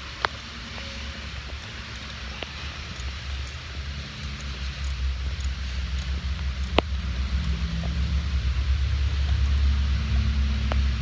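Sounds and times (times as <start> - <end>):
sharp click: 1.5 - 3.6, 4.2 - 8.0, 9.3 - 9.8.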